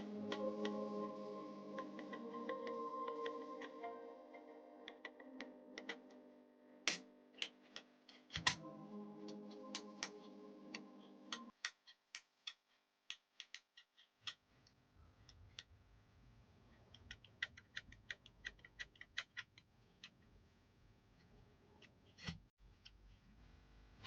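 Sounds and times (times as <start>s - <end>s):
music: 0.0s - 7.5s, 8.5s - 11.5s
small clicks and ticks: 16.8s - 20.3s.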